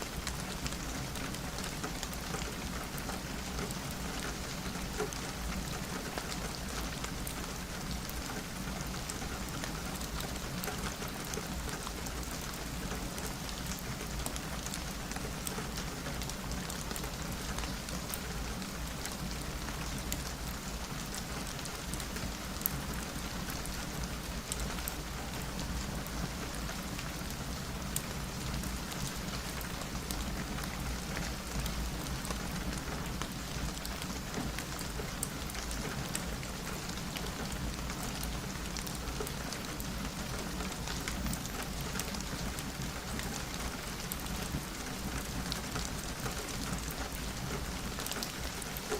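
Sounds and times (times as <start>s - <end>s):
rain pattering on a window: 0.0s - 48.9s.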